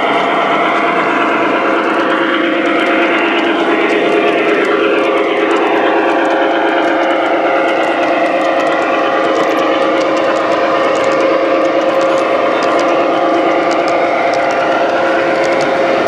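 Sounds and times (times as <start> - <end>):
model train motor hum: 0.0 - 16.0.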